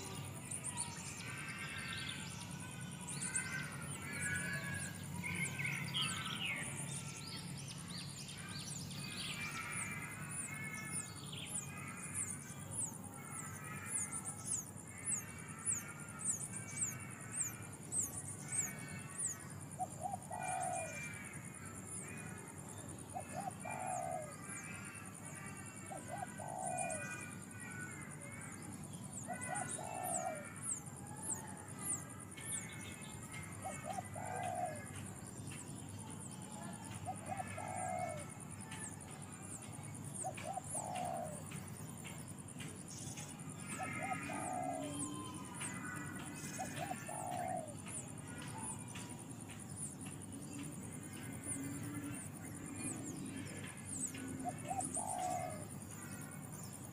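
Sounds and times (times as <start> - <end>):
birds chirping: 0.0 - 56.9
low cooing bird call: 19.9 - 21.2, 23.1 - 25.0, 25.8 - 27.3, 29.2 - 32.0, 33.4 - 35.0, 36.5 - 39.0, 39.7 - 41.7, 43.6 - 48.7, 50.3 - 56.4.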